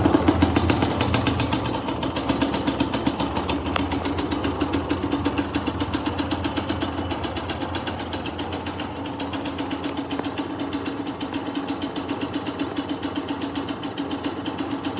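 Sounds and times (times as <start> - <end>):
two-stroke engine idling: 0.0 - 14.9.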